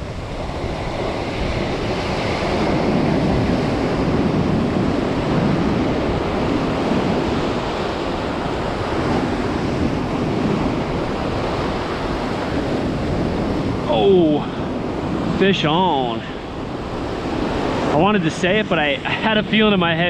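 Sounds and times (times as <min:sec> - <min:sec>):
ocean surf on beach: 0:00.0 - 0:20.0
wind buffeting microphone: 0:00.0 - 0:20.0.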